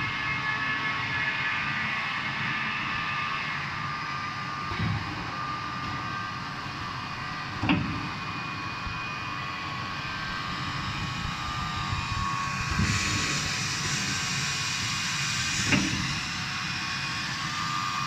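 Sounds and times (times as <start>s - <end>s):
welding machinery hum and whine: 0.0s - 18.0s
hiss: 12.7s - 18.0s.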